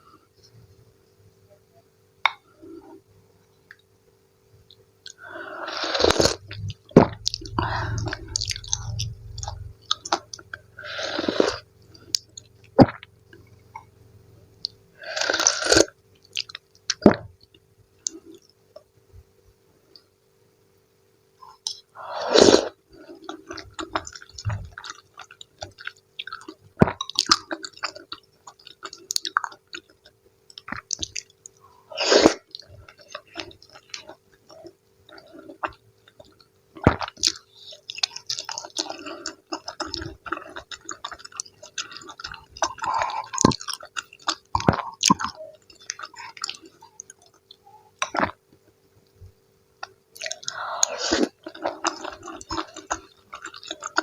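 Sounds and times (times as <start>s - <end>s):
faint steady hum: 0.0s - 54.0s
wet chewing: 32.3s - 48.4s, 49.8s - 54.0s.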